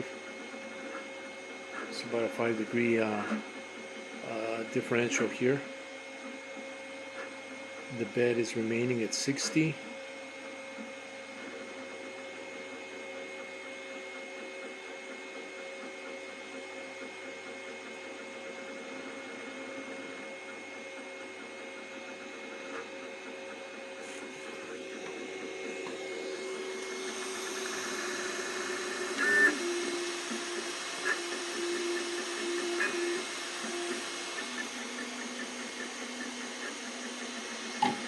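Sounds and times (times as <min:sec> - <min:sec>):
mechanical hum: 0:00.0 - 0:38.0
stepper motors whining: 0:24.0 - 0:38.0.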